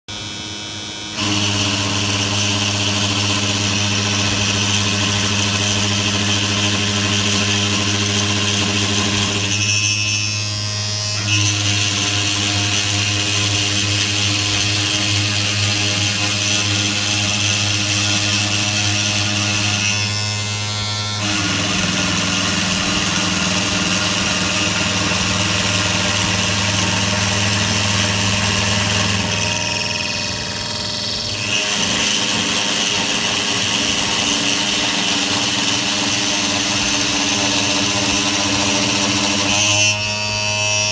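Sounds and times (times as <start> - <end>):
cnc machine electric hum: 0.1 - 40.9
high whine: 20.2 - 32.5.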